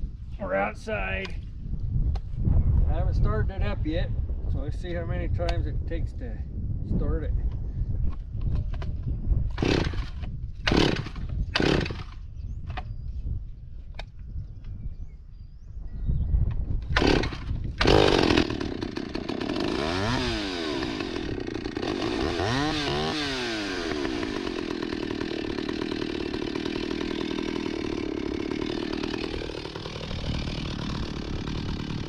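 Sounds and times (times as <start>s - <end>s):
chainsaw starting and running: 9.5s - 12.2s, 16.8s - 32.0s.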